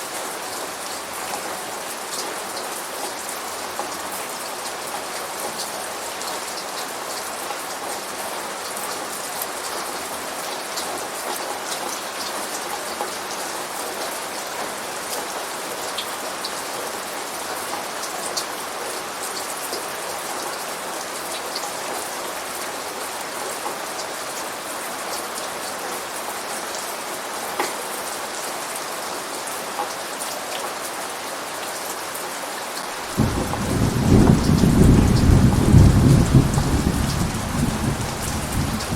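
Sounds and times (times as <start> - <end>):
steady rain falling: 0.0 - 38.9
raindrops ticking on surfaces: 31.6 - 38.9
low thunder rumble: 33.1 - 38.9.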